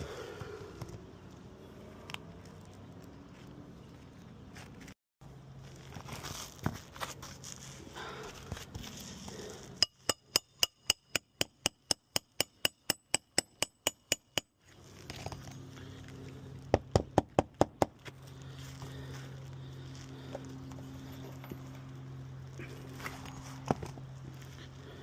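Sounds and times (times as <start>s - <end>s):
hammer striking nails: 9.8s - 14.5s, 16.8s - 18.0s.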